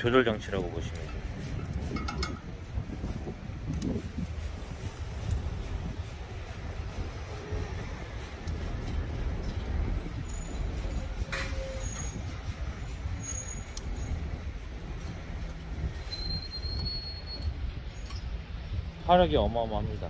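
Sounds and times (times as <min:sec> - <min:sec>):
fire crackles: 0:00.0 - 0:20.0
wood fire rumbling in stove: 0:00.0 - 0:20.0
thin high whistles: 0:09.1 - 0:14.4, 0:15.9 - 0:18.4.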